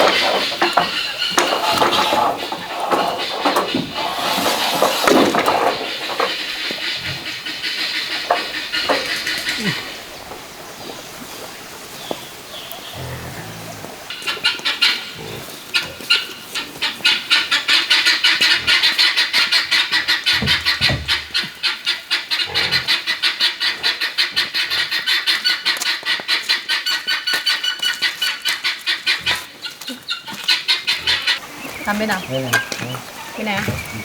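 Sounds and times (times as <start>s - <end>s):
hand saw cutting bamboo: 0.0s - 9.7s.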